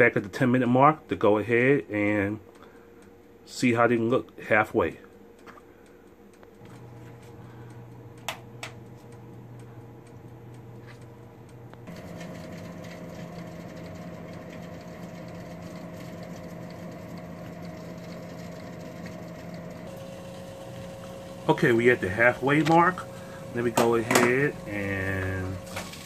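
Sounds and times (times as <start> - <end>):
oven fan humming: 0.0 - 26.0.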